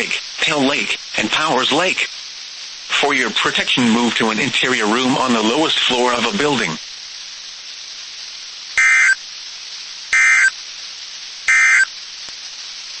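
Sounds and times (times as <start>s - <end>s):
radio hiss: 0.0s - 13.0s
buzzy digital data bursts: 8.8s - 9.2s, 10.1s - 10.6s, 11.5s - 11.9s.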